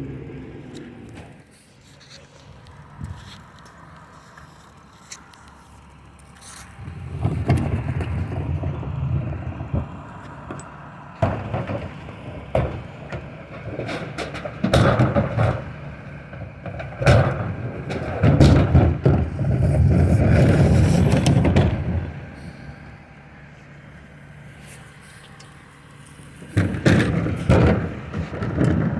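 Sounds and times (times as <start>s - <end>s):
truck engine hum: 0.0s - 28.9s
knocks and clanks: 6.3s - 22.5s, 26.2s - 28.9s.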